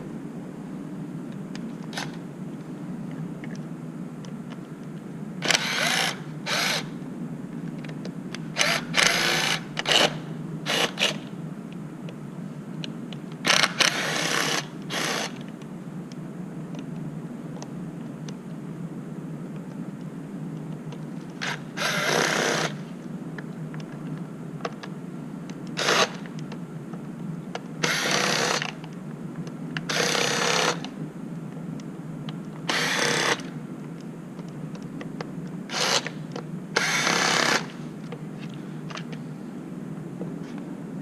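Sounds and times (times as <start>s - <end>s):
cordless power driver spinning: 5.4s - 6.9s, 8.6s - 11.2s, 21.4s - 22.8s, 25.8s - 26.2s, 27.8s - 28.7s, 29.9s - 30.8s, 32.7s - 33.5s, 35.7s - 36.2s, 36.8s - 37.8s.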